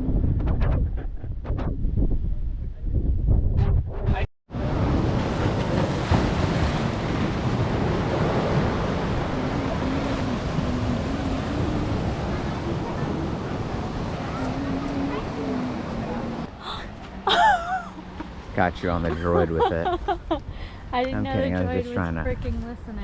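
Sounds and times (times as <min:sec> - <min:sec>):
ocean surf rushing: 0:04.5 - 0:22.2
faint voices: 0:09.2 - 0:17.2.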